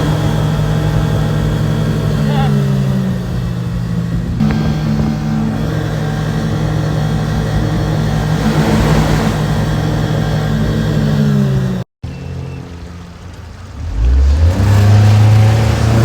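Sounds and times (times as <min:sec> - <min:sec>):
outboard motor running at high revs: 0:00.0 - 0:16.0
rush of wind and water: 0:03.9 - 0:11.2.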